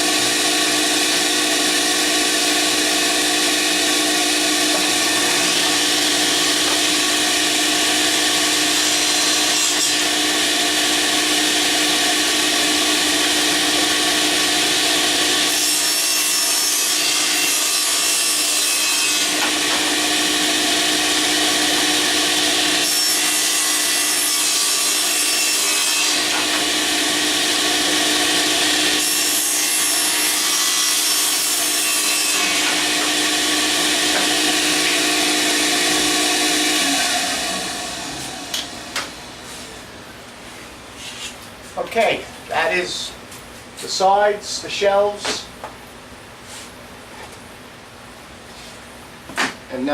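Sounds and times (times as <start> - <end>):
table saw ripping boards: 0.0 - 39.9.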